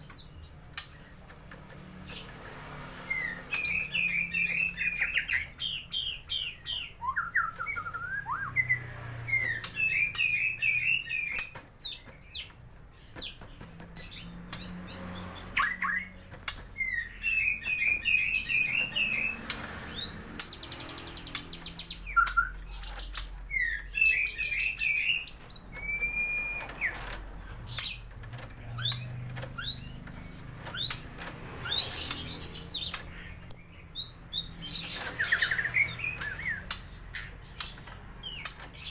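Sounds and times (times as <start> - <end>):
bird singing whistled phrases: 3.2 - 11.5, 22.0 - 27.0
sharp clicks: 34.4 - 38.9.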